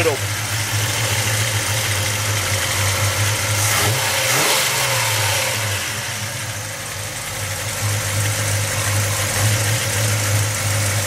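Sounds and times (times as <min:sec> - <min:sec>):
pickup engine idling and revving: 0:00.0 - 0:11.0.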